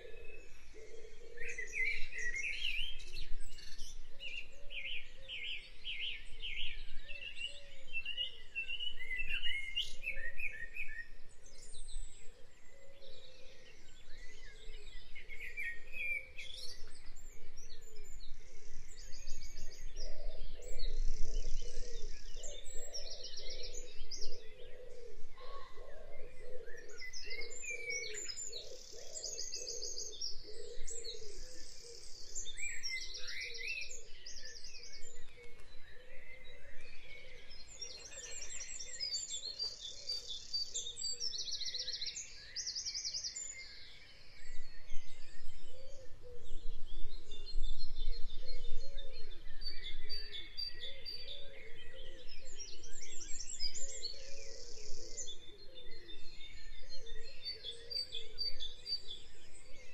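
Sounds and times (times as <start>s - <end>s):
birds chirping: 12.6s - 47.1s.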